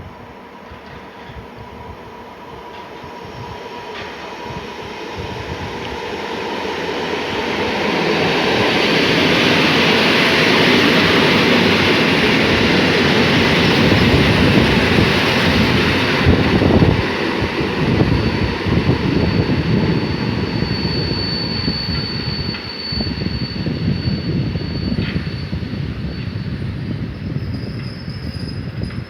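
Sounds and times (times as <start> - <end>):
train rolling on rails: 0.0 - 29.0
thin high squeal: 18.0 - 29.0.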